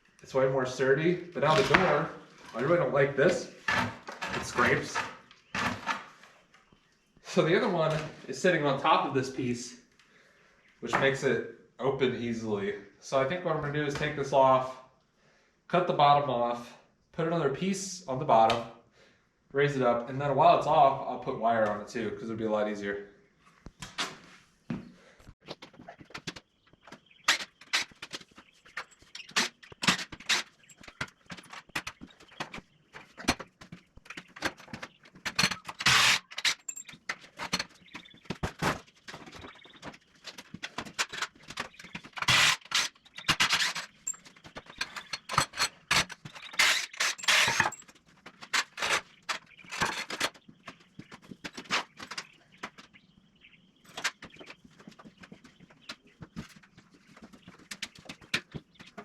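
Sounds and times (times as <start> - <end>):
scraping on wood: 3.3 - 6.4, 23.6 - 53.0
knocks and clinks on wood: 24.7 - 53.0.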